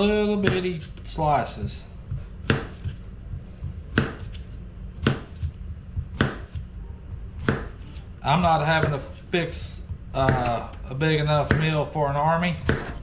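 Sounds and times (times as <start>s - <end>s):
knife slicing a vegetable: 2.2s - 3.0s, 12.6s - 13.0s.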